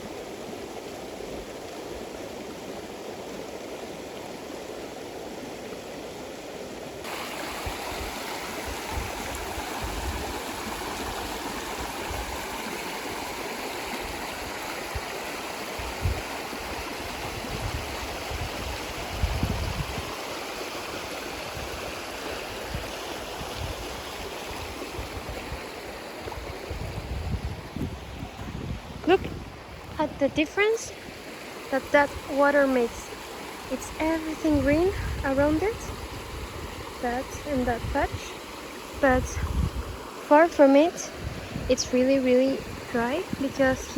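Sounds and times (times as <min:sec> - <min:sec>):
stream flowing over rocks: 0:00.0 - 0:43.9
low rumbles on microphone: 0:26.7 - 0:30.3.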